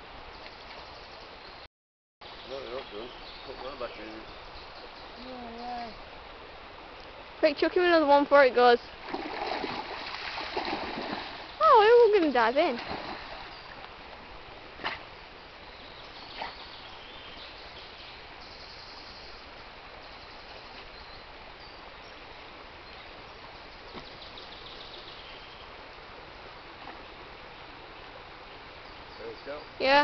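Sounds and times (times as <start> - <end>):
outdoor background noise by water: 0.0 - 30.0
faint bird chirping: 0.3 - 6.1, 15.6 - 25.8, 26.6 - 30.0.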